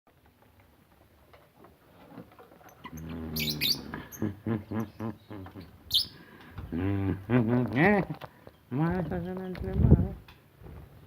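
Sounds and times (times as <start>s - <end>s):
lovebirds chirping: 2.7s - 6.8s.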